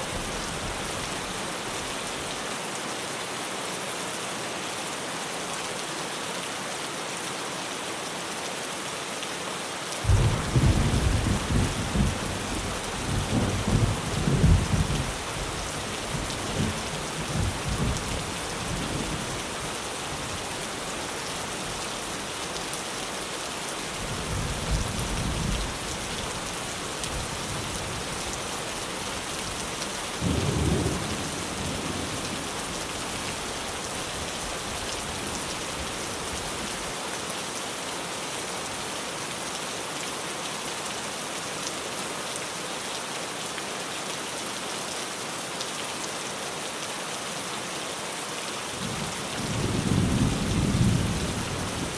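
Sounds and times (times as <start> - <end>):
rain drumming on a tin roof: 0.0 - 3.4, 9.8 - 51.9
thunder rumbling: 10.1 - 15.4.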